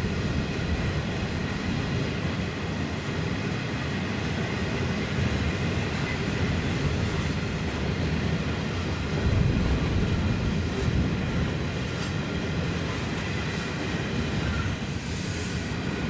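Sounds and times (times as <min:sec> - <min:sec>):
train wagons rumbling on rails: 0:00.0 - 0:16.0.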